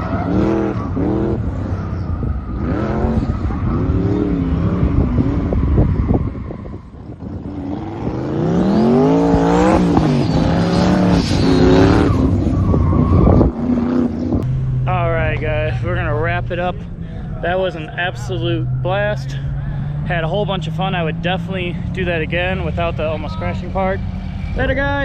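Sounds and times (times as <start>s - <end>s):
car engine revving hard: 0.0s - 6.4s, 7.1s - 14.8s.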